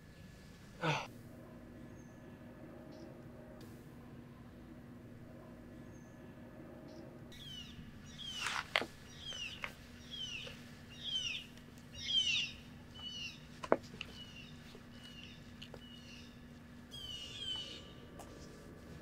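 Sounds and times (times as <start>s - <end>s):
faint steady hum: 0.0s - 19.0s
songbird downward chirp: 6.9s - 13.5s, 14.1s - 18.0s.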